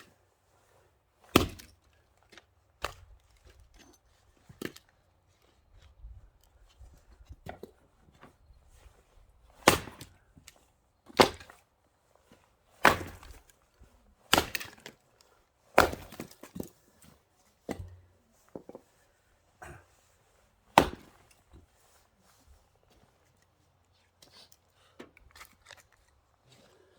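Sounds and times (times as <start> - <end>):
axe splitting firewood: 1.3 - 5.8, 9.6 - 10.5, 11.1 - 11.6, 12.8 - 13.6, 14.3 - 15.0, 15.8 - 16.9, 17.7 - 18.9, 20.7 - 21.5.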